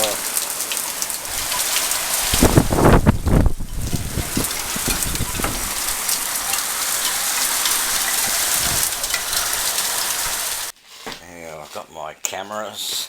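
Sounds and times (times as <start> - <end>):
heavy rain pouring: 0.0 - 10.8
wind rumbling on microphone: 1.2 - 10.7.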